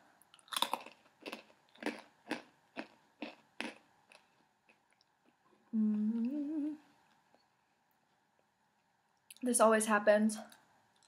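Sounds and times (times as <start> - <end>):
crunchy pretzels being chewed: 0.3 - 5.5
closed-mouth hum rising: 5.6 - 9.2.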